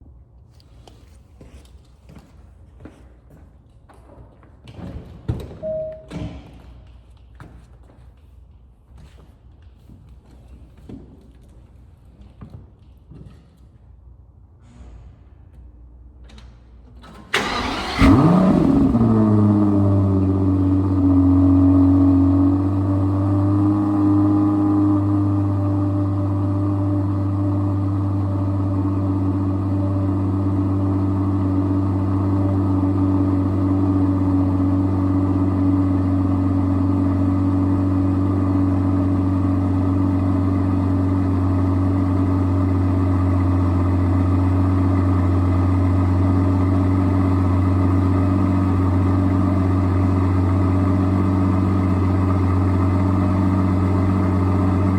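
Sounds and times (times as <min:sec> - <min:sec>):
car engine fast idle: 0:17.1 - 0:54.9.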